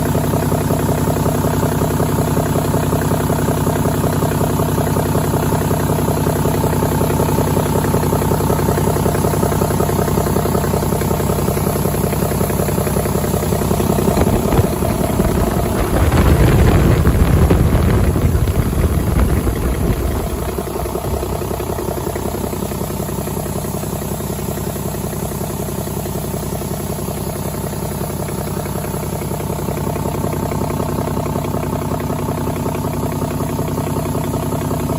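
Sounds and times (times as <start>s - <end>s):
diesel engine idling and revving: 0.0s - 34.9s.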